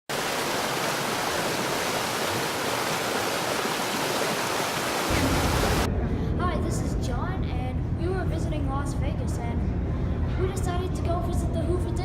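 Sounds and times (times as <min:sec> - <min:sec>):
rushing water noise: 0:00.1 - 0:05.9.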